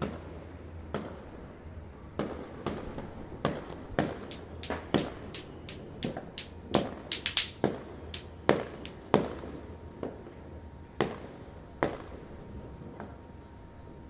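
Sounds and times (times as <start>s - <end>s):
distant fireworks bangs: 2.2s - 9.4s.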